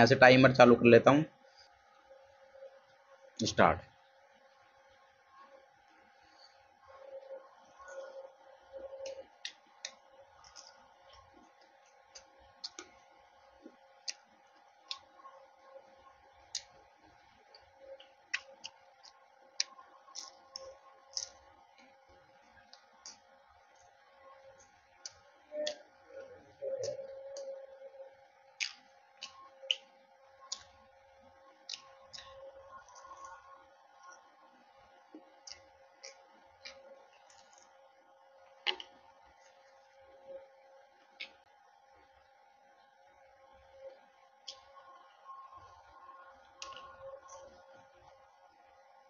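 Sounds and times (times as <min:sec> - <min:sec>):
faint steady hum: 0:00.0 - 0:49.0
mouth clicks: 0:14.9 - 0:15.2, 0:24.6 - 0:27.6.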